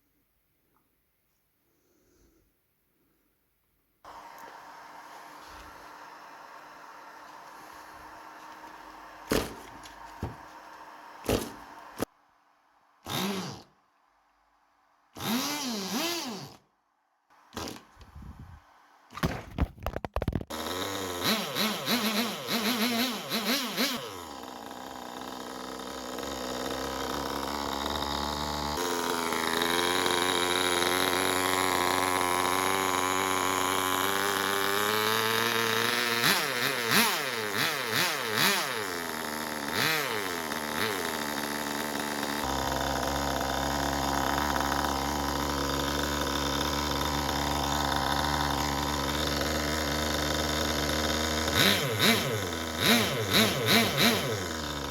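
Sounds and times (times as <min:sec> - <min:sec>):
small model engine buzzing: 0:13.0 - 0:13.8, 0:15.1 - 0:16.7, 0:20.5 - 0:54.9.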